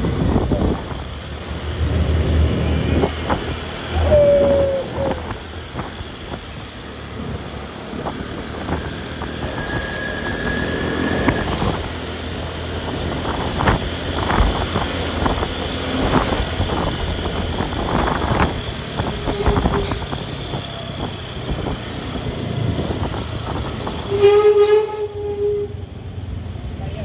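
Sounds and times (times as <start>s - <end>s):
wind buffeting microphone: 0.0s - 24.1s.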